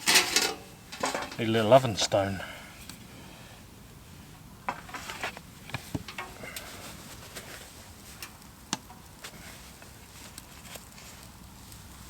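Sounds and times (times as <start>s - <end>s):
cookware clicks and knocks: 0.0s - 1.4s.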